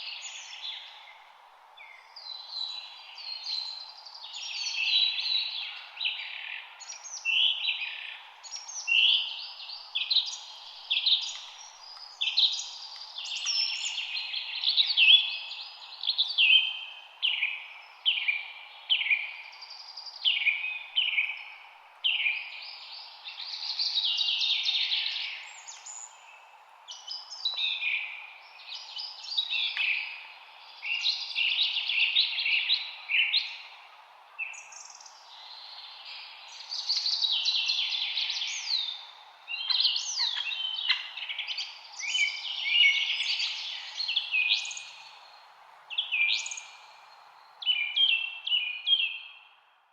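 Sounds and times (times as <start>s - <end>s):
songbirds chirping and singing: 0.0s - 1.2s, 1.8s - 49.5s.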